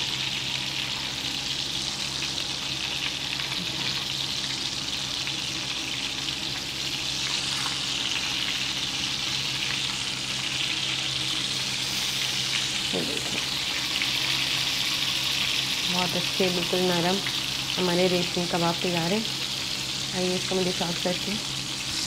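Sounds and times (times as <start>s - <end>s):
oil sizzling in frying pan: 0.0s - 22.0s.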